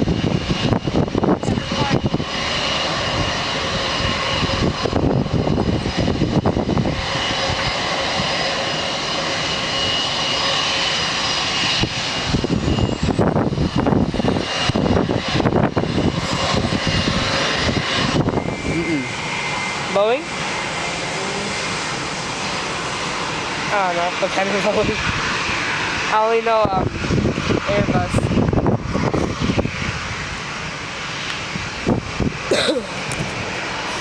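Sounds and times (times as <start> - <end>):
jet engines passing with whine: 0.0 - 34.0.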